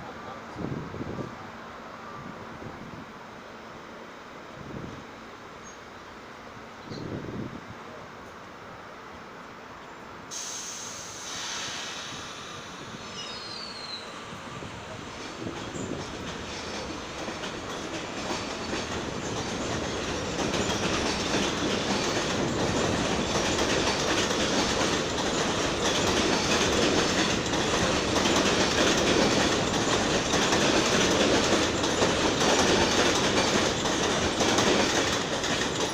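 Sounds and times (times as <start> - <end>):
subway train running: 0.0 - 35.9
wheels clicking over rail joints: 15.4 - 35.9.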